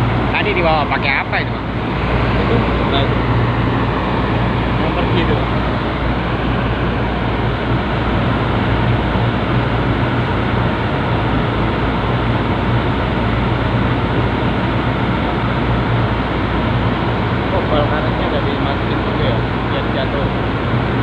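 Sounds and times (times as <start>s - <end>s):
large vehicle engine droning: 0.0s - 21.0s.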